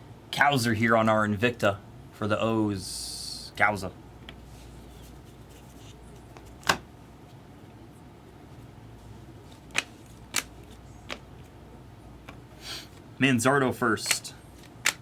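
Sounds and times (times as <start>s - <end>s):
trading cards snapping: 9.7s - 11.2s, 14.0s - 15.0s.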